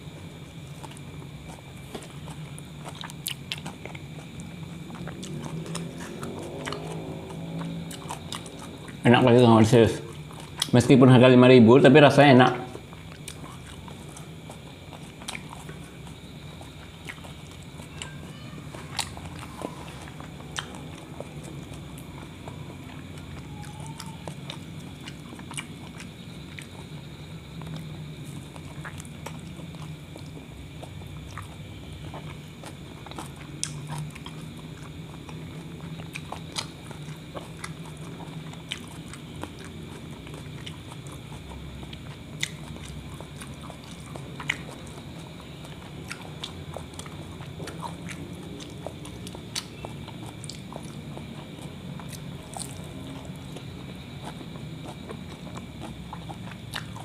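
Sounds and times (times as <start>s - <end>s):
person chewing food: 0.0s - 10.8s, 12.6s - 57.0s
steady low hum: 0.0s - 57.0s
wet mouth clicks: 38.7s - 57.0s.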